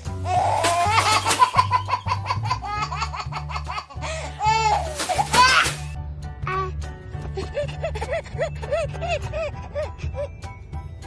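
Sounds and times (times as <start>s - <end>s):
background music with bass line: 0.0s - 11.0s
baby giggling: 0.3s - 5.7s.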